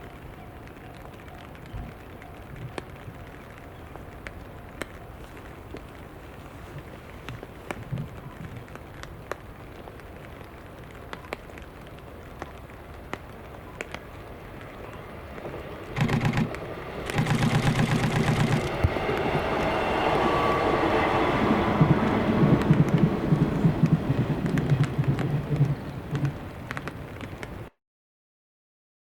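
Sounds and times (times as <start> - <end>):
train rumbling: 14.5 - 27.7.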